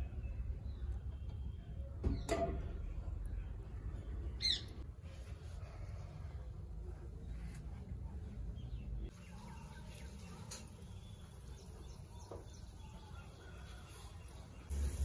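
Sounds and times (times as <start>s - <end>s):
small birds chirping: 7.2s - 15.0s.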